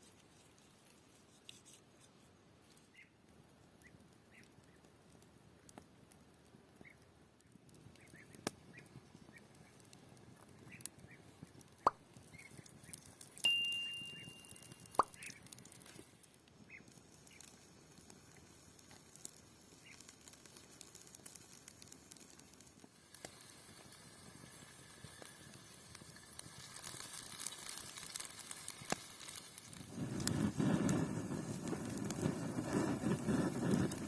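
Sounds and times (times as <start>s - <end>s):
faint high chirps: 13.4s - 15.4s.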